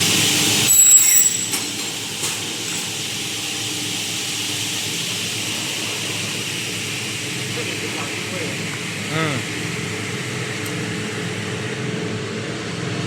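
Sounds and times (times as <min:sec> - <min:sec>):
high metallic ringing: 0:00.7 - 0:02.0
low machine hum: 0:01.2 - 0:13.0.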